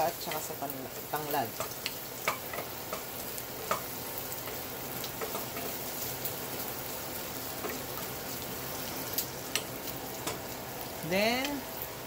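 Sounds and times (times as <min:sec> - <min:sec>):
meat sizzling in hot oil: 0:00.0 - 0:12.0
wooden spatula clicking on pot: 0:01.5 - 0:03.9.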